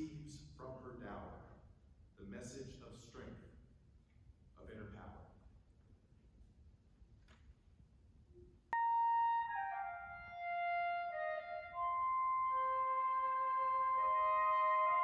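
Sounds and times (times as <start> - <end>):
flute playing: 8.8 - 15.0.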